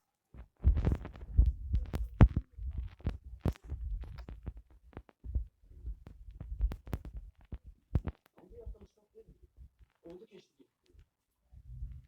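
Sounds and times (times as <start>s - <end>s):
low thumps: 0.6s - 8.8s.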